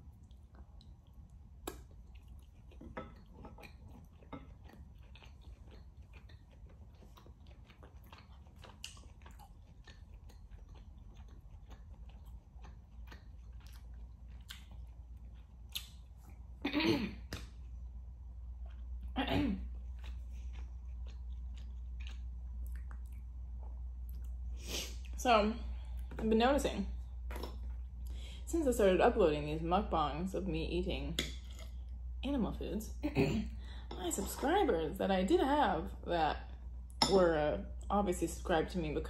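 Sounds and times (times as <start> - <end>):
person chewing with wet mouth smacks: 0.0 - 16.6, 17.2 - 25.2, 27.2 - 28.2
steady low hum: 0.0 - 39.0.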